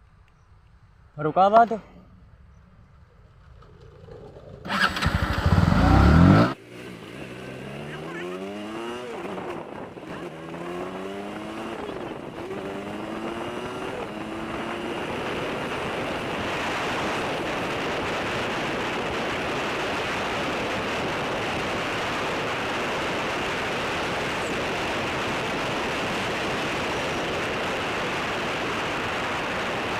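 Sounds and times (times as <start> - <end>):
motorcycle engine accelerating: 2.0 - 29.9
wind on microphone: 8.4 - 29.9.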